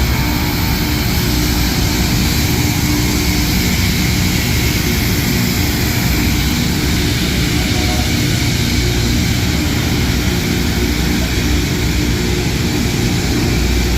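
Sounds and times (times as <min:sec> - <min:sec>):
diesel engine drone: 0:00.0 - 0:13.9
rail grinder hiss: 0:00.0 - 0:13.9.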